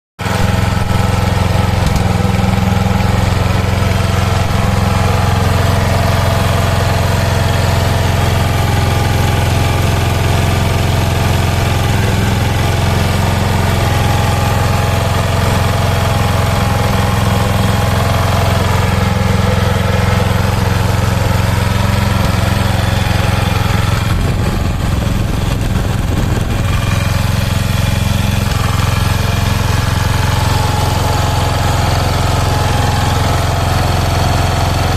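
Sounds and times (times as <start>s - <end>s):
small gasoline engine running: 0.2s - 34.9s.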